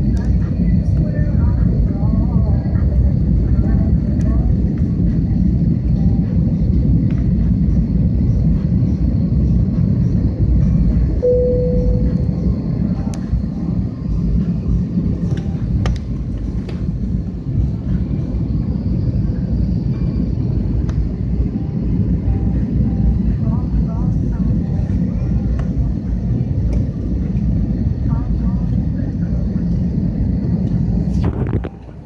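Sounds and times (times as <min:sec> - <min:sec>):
airliner low rumble: 0:00.0 - 0:32.0
faint high whine: 0:11.2 - 0:15.7.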